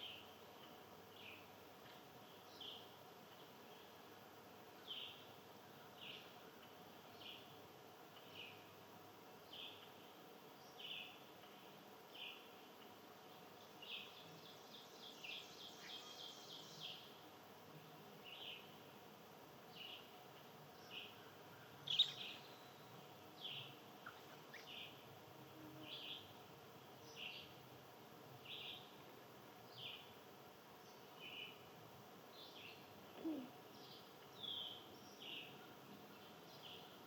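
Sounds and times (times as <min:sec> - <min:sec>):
small songbird chirping: 0:00.0 - 0:04.0, 0:04.8 - 0:06.4, 0:07.0 - 0:08.8, 0:09.4 - 0:17.2, 0:18.2 - 0:18.8, 0:19.7 - 0:25.1, 0:25.8 - 0:26.4, 0:27.0 - 0:27.6, 0:28.4 - 0:29.0, 0:29.6 - 0:30.2, 0:30.8 - 0:37.0
faint background noise: 0:00.0 - 0:37.0.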